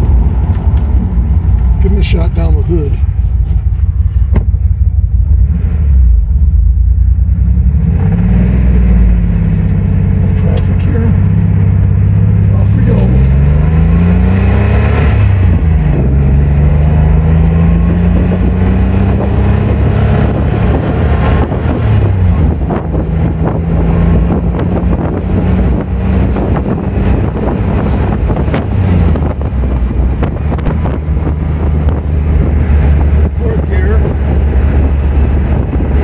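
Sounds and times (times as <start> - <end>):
road and wind noise: 0.0 - 36.0
car engine accelerating through gears: 5.2 - 36.0.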